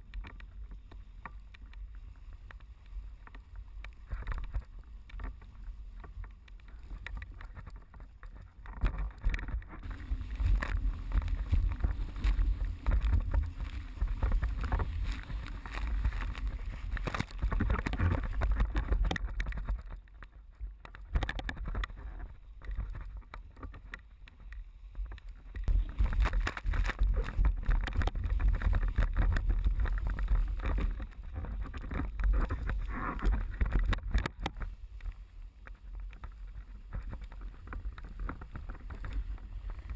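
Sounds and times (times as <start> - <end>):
water rushing and splashing: 2.9 - 19.9
wind buffeting on microphone: 4.0 - 24.2, 25.0 - 34.8.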